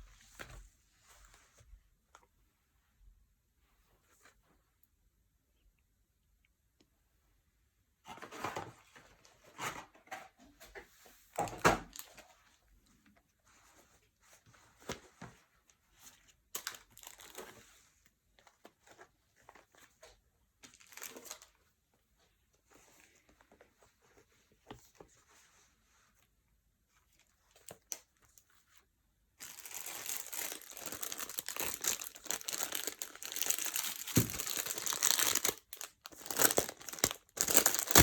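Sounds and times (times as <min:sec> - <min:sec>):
paper and packaging rustling: 0:29.4 - 0:38.0.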